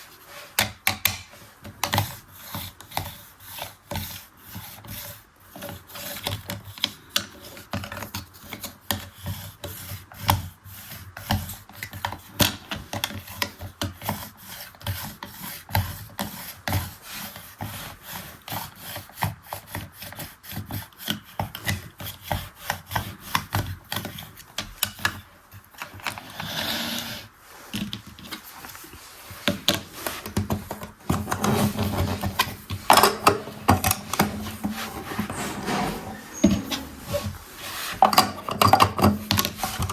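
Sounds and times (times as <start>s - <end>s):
toy washing machine scratching and clicking: 29.7s - 39.9s.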